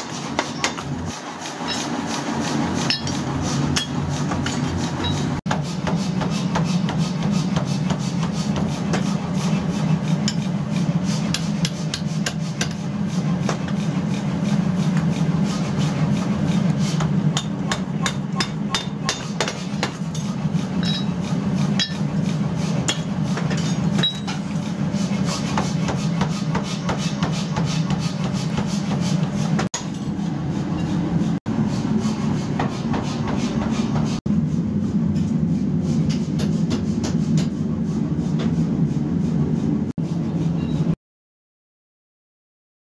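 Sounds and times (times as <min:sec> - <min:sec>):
hammer striking iron: 0:00.0 - 0:02.2, 0:02.8 - 0:09.1, 0:11.3 - 0:12.9, 0:17.0 - 0:21.2, 0:21.8 - 0:22.1, 0:22.8 - 0:24.4.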